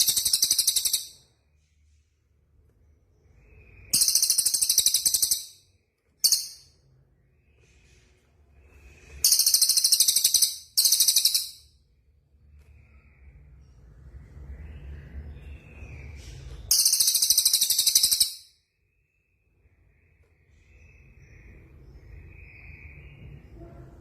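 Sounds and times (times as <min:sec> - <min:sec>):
songbird trilling: 0:00.0 - 0:01.2, 0:03.5 - 0:05.6, 0:09.2 - 0:11.6, 0:15.4 - 0:18.5
faint soft bird calls: 0:00.0 - 0:24.0.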